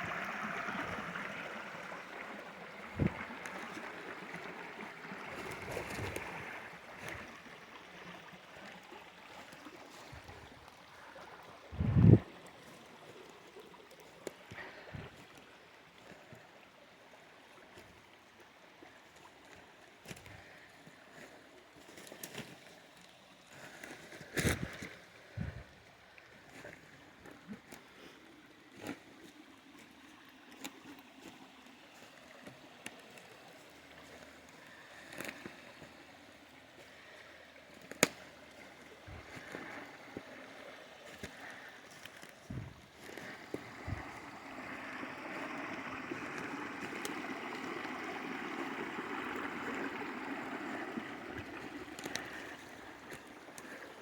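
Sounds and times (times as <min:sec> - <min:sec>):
water trickling: 0:00.0 - 0:54.0
small splashes: 0:26.3 - 0:54.0.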